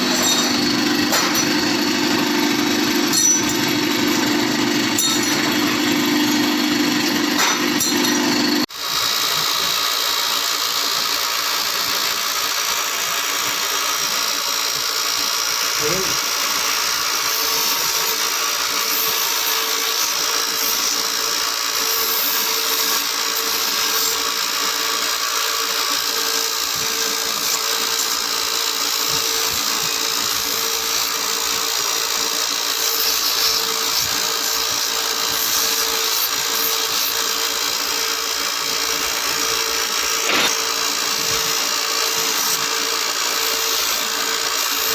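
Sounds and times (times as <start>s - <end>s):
factory machinery running: 0.0s - 8.7s.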